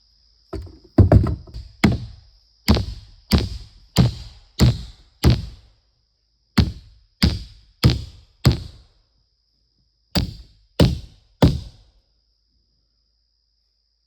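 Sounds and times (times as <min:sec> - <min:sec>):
heavy tool striking wood: 0:00.6 - 0:05.6, 0:06.6 - 0:08.8, 0:10.2 - 0:11.7.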